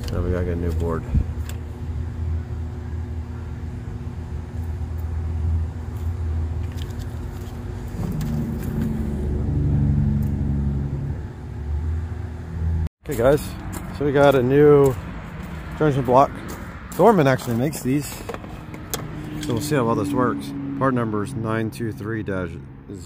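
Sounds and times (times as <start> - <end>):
vehicle engine idling: 0.0 - 23.0
second hum: 1.0 - 12.9.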